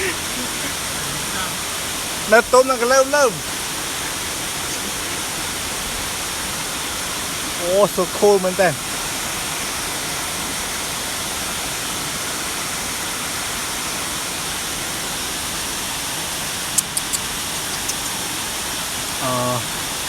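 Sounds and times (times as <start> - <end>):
waterfall rushing: 0.0 - 20.0
sharp high ticks: 16.7 - 18.3.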